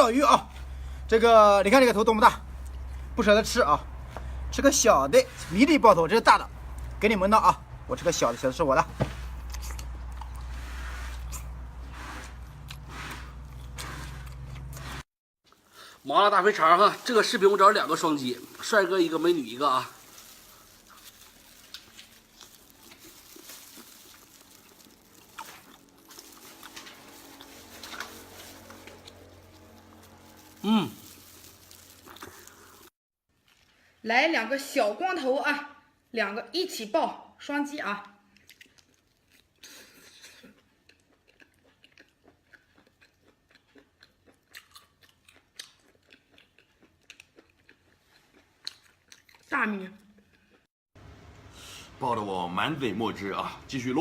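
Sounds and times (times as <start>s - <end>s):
chewing: 9.2s - 15.6s, 17.0s - 33.8s, 38.3s - 50.7s.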